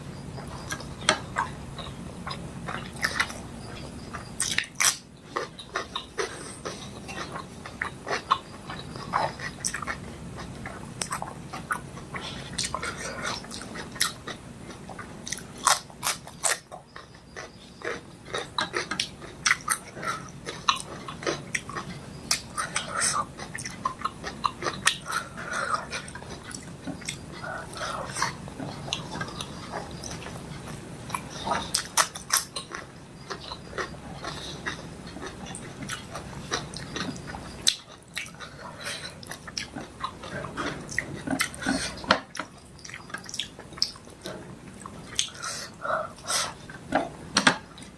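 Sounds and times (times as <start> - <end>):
crunch: 0.4 - 45.7
wet chewing and smacking: 0.4 - 47.1.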